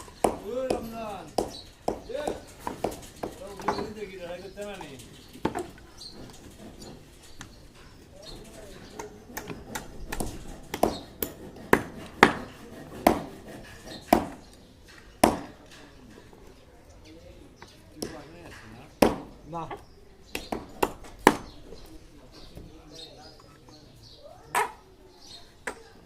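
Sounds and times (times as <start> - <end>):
hand tool striking hard material: 0.0 - 7.6, 8.2 - 16.2, 17.9 - 19.4, 20.3 - 21.8.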